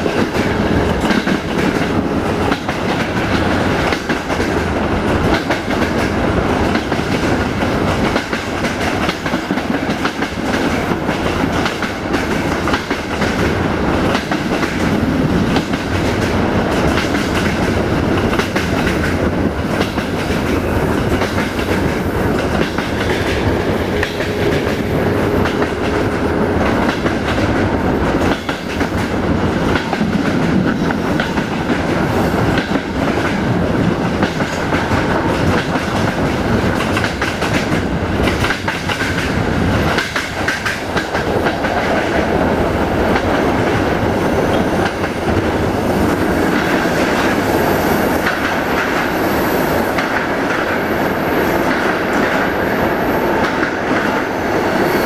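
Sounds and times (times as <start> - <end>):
clickety-clack of rail joints: 0.0 - 54.9
train wheels rumbling on rails: 0.0 - 55.0.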